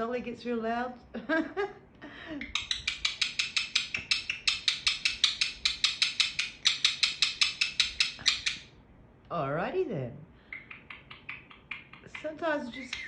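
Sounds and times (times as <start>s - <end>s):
parakeet screeching: 2.4s - 8.8s, 10.5s - 13.0s.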